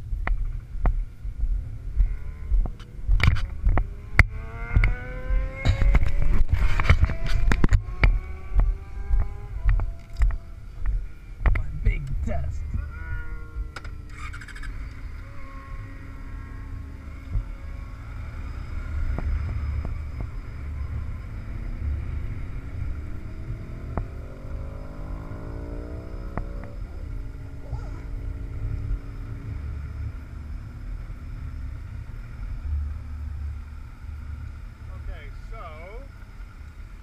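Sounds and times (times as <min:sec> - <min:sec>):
motorcycle engine accelerating: 0:00.0 - 0:35.3.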